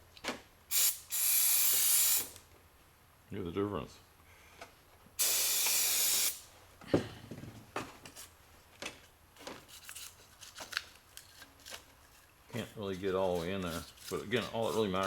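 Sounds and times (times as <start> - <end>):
aerosol spray burst: 0.7 - 2.4, 5.2 - 6.4.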